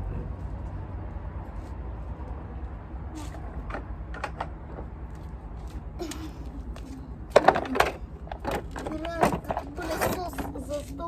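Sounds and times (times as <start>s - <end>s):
low steady rumble: 0.0s - 11.0s
plastic parts clicking and knocking: 3.6s - 4.9s, 7.3s - 10.6s.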